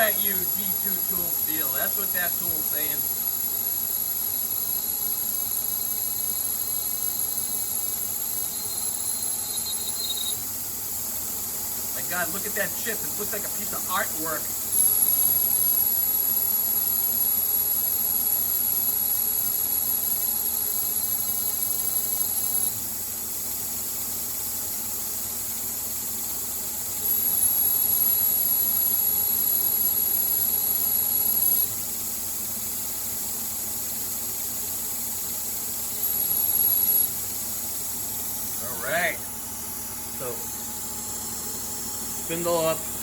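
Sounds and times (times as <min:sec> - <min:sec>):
lathe cutting squeal: 0:05.7 - 0:10.4.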